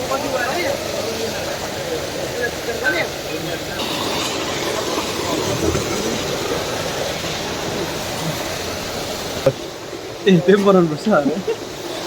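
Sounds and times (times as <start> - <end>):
faint voices murmuring: 0.0 - 12.0
steady rushing noise: 3.7 - 12.0.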